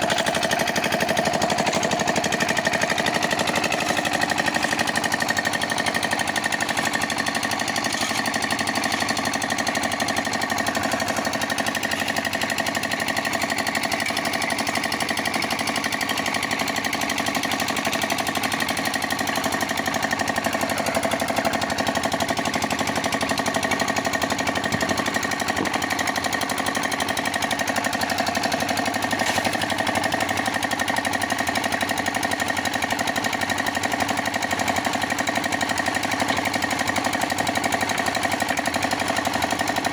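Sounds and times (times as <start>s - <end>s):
concrete mixer clattering: 0.0s - 39.9s.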